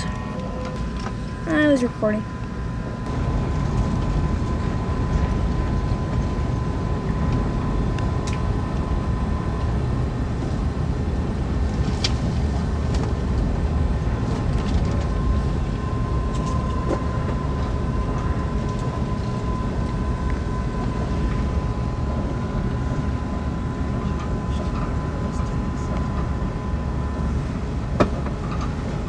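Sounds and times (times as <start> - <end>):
faint constant whine: 0.0 - 29.0
wheels rumbling on rail: 0.0 - 29.0.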